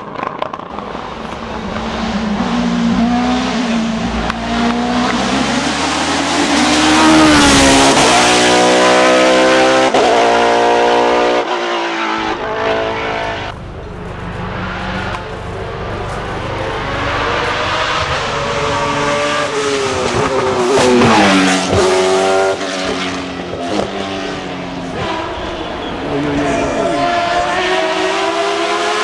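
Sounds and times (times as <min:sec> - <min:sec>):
race car accelerating past: 0:15.9 - 0:29.0.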